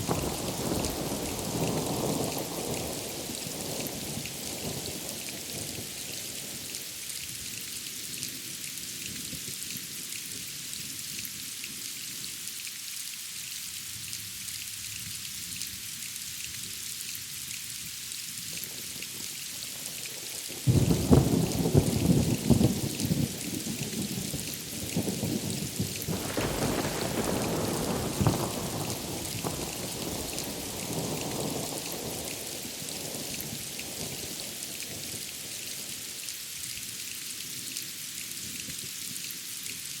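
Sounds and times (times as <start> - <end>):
rain hiss: 0.0 - 40.0
thunder clap and rumble: 24.9 - 32.2.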